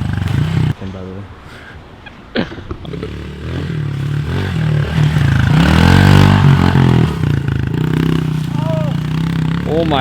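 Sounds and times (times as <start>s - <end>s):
small motorbike engine revving: 2.9s - 10.0s.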